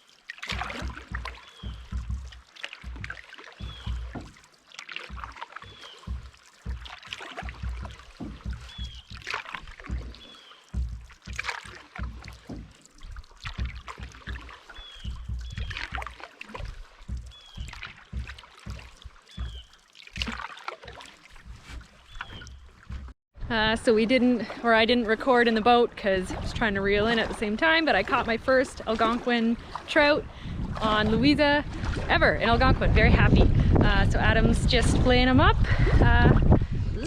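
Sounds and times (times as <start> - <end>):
canoe paddle splashing in water: 0.0 - 23.2, 23.9 - 36.5
wind rumble on microphone: 21.4 - 37.0.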